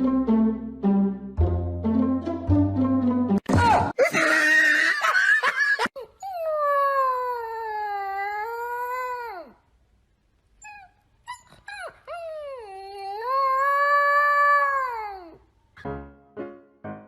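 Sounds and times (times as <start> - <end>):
plucked-string music: 0.0 - 3.4.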